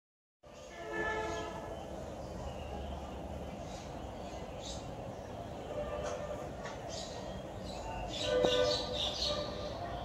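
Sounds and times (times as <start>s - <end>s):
small birds chirping: 1.4s - 5.7s.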